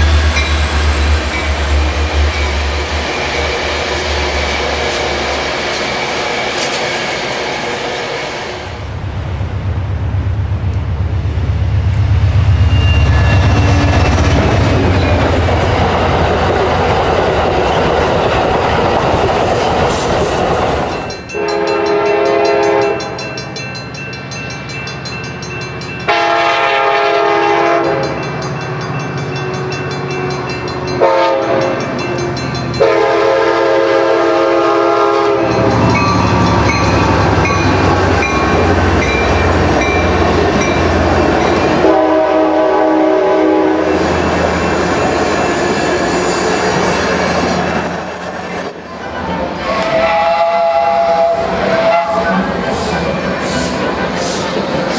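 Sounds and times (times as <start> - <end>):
train passing with low rumble: 0.0 - 54.9
multi-tone train horn blasts: 21.3 - 23.2, 26.1 - 28.2, 29.4 - 32.0, 32.7 - 47.6, 49.3 - 52.6.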